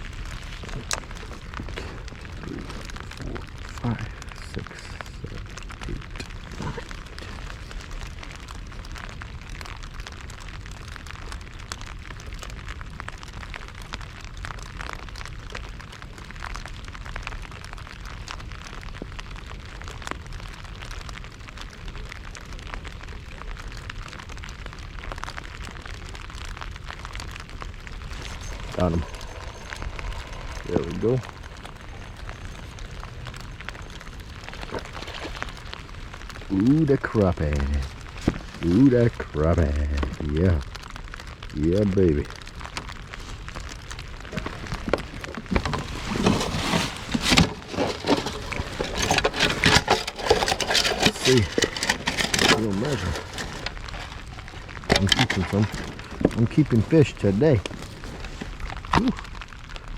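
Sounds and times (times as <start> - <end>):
raindrops tapping: 0.0 - 59.9
low rumble: 26.9 - 36.6.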